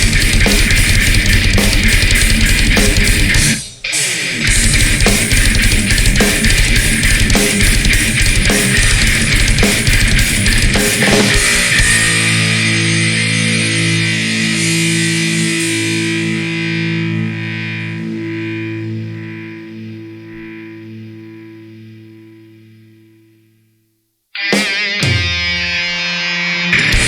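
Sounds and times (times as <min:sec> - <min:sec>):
drum hits: 0:00.0 - 0:03.6, 0:04.5 - 0:12.2
guitar chord ringing: 0:00.0 - 0:23.3, 0:24.4 - 0:27.0
distorted electric guitar music: 0:00.0 - 0:23.6, 0:24.4 - 0:27.0.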